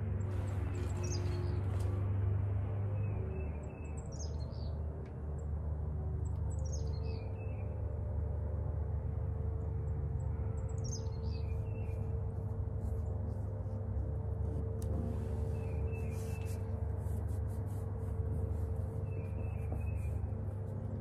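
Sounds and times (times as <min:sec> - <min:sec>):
steady low drone: 0:00.0 - 0:21.0
small birds twittering: 0:00.2 - 0:01.9, 0:03.0 - 0:04.8, 0:06.5 - 0:07.7, 0:10.3 - 0:13.2, 0:15.3 - 0:16.8, 0:18.4 - 0:21.0.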